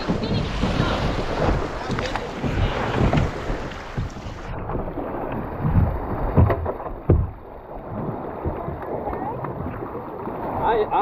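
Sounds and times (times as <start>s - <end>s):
wind buffeting microphone: 0.0s - 10.7s
water sloshing around boat: 0.0s - 11.0s
sharp knocks: 5.6s - 7.4s.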